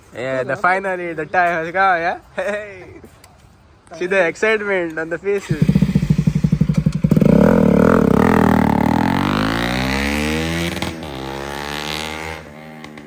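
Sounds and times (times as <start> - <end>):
motorcycle engine revving: 5.4 - 13.0.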